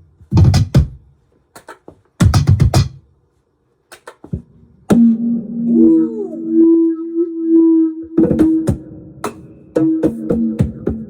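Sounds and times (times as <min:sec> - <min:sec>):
cajon hits: 0:01.6 - 0:03.0
sustained electronic drone: 0:04.9 - 0:11.0.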